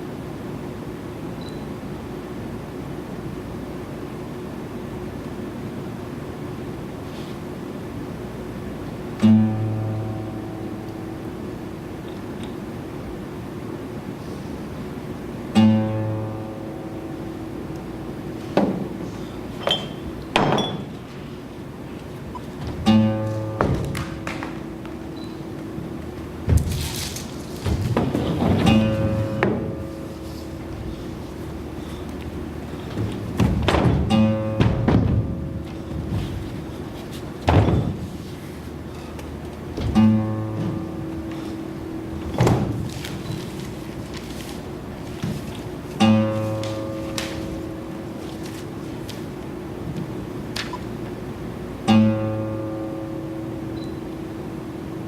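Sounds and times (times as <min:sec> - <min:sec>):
guitar strings strummed: 0:09.2 - 0:11.8, 0:15.5 - 0:18.2, 0:22.7 - 0:26.5, 0:28.4 - 0:31.8, 0:33.7 - 0:36.2, 0:39.8 - 0:42.8, 0:45.9 - 0:48.2, 0:51.8 - 0:55.0
acoustic guitar note plucked: 0:09.2 - 0:12.2, 0:15.5 - 0:18.1, 0:22.6 - 0:26.5, 0:28.4 - 0:31.8, 0:33.7 - 0:36.3, 0:39.8 - 0:42.8, 0:46.0 - 0:48.2, 0:51.8 - 0:54.9.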